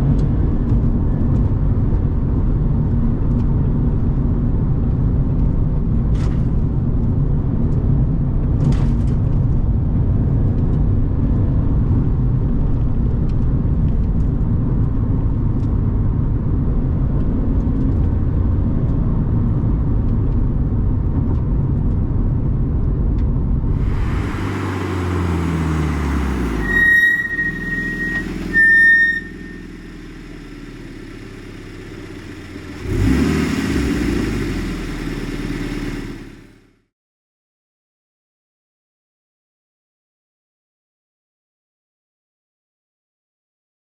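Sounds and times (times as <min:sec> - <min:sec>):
road noise: 0:23.6 - 0:36.8
car engine running: 0:23.7 - 0:36.7
high-pitched squeals: 0:23.8 - 0:31.0.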